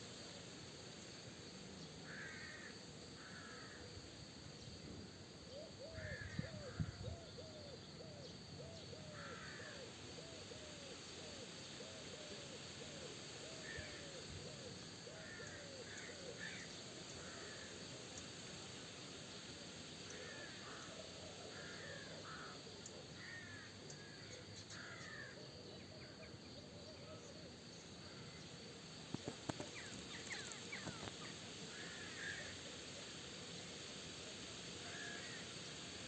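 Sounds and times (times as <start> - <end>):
faint hiss: 0.0 - 36.0.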